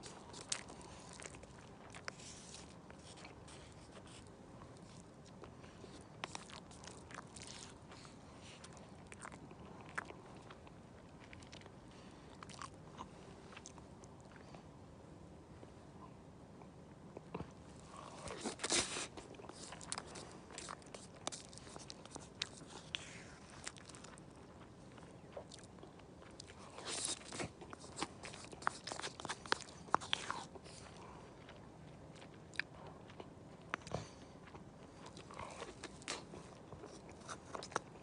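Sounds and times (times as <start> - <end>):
person crunching and chewing: 0.0 - 14.4, 17.8 - 38.0.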